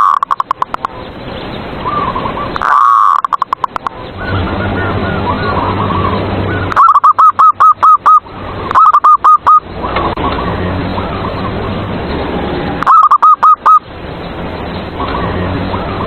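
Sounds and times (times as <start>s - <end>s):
dove cooing: 1.8s - 3.9s, 4.7s - 9.6s, 10.2s - 13.8s.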